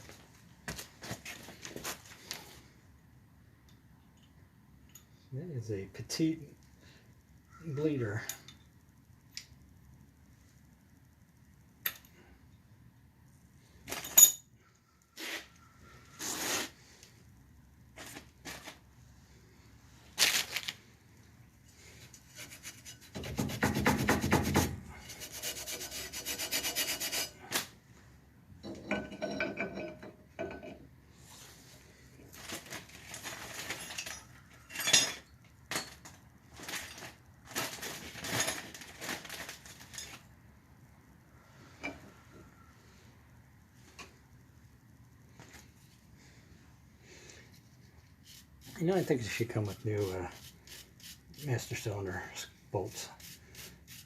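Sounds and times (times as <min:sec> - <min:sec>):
hand tools scraping metal parts: 0:22.0 - 0:27.7, 0:28.6 - 0:30.8, 0:32.3 - 0:40.3, 0:47.5 - 0:52.0.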